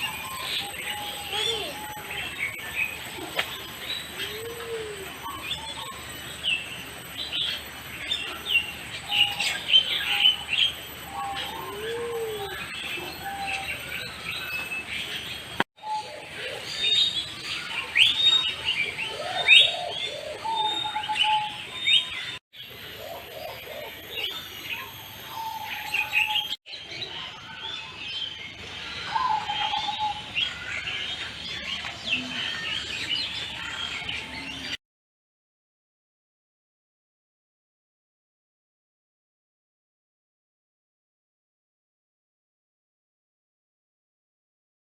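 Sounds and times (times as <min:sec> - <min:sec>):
many birds chirping: 0:00.0 - 0:34.8.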